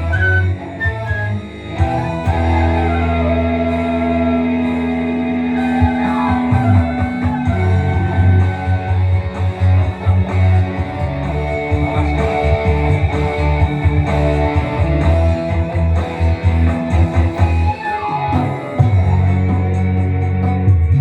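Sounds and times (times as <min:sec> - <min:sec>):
electric guitar melody: 0:00.0 - 0:21.0
steady bass line: 0:00.0 - 0:21.0.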